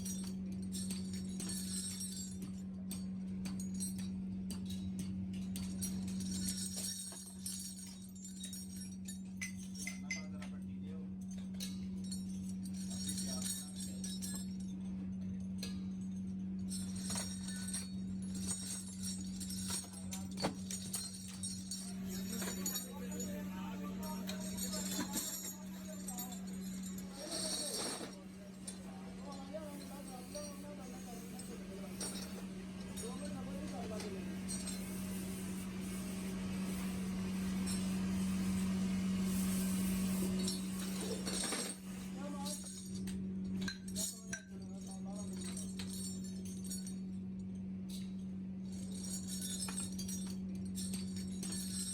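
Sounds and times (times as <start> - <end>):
metal parts clinking: 0.0 - 10.3, 15.3 - 47.1, 47.9 - 51.9
machine motor hum: 20.6 - 42.6.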